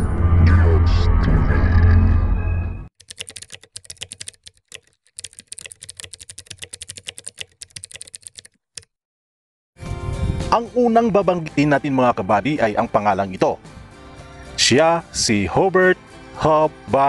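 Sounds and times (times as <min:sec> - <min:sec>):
keyboard typing clicks: 0:03.0 - 0:08.9.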